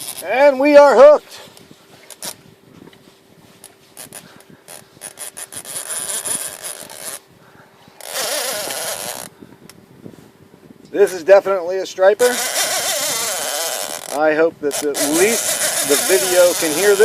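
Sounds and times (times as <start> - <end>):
fishing reel drag buzzing: 0.0 - 1.3, 2.0 - 2.5, 3.6 - 7.3, 8.0 - 9.4, 11.0 - 17.0
faint steady hum: 0.0 - 17.0.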